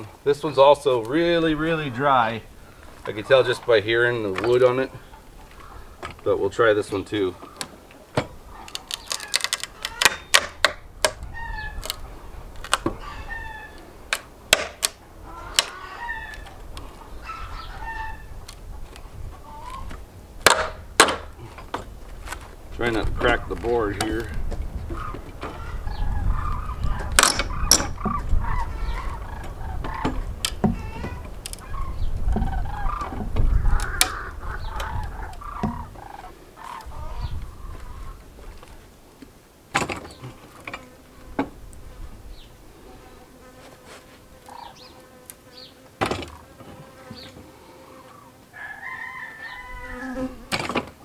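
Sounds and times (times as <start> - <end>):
wood creaking and cracking: 0.0 - 42.6
chickens clucking: 11.4 - 14.0, 15.1 - 21.7, 22.8 - 38.8
rooster crowing: 15.4 - 16.5, 48.5 - 50.5.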